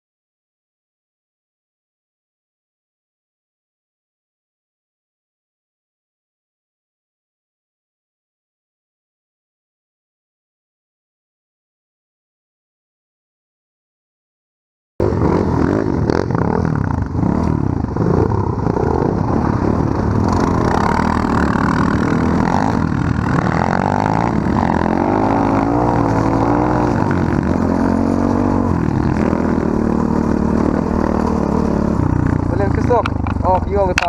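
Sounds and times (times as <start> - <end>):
small off-road engines revving: 15.0 - 34.0.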